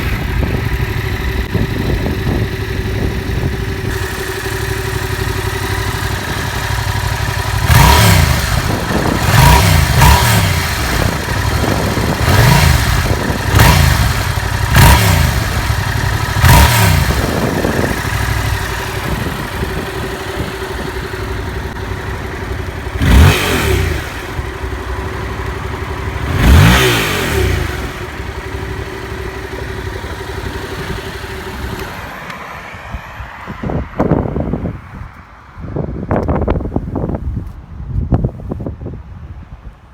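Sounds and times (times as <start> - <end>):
sharp throttle blips: 0.0 - 32.4
motorcycle engine idling: 0.0 - 33.3.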